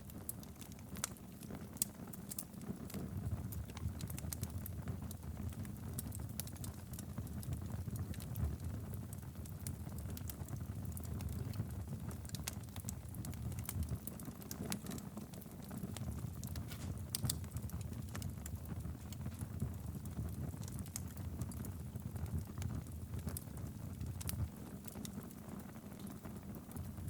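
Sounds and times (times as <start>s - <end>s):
fire crackles and pops: 0.0s - 27.0s
flames rumbling: 0.0s - 27.0s.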